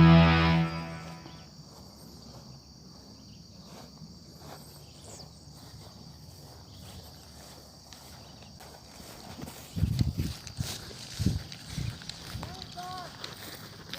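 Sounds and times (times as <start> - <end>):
high-pitched insect trill: 0.0 - 13.9.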